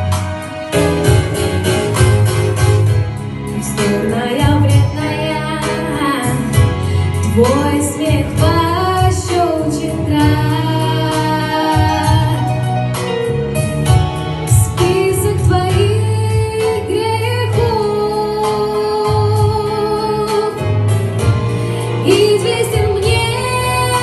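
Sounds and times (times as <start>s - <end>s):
instrumental accompaniment with beat: 0.0s - 24.0s
woman singing pop song: 3.5s - 13.0s, 14.5s - 24.0s.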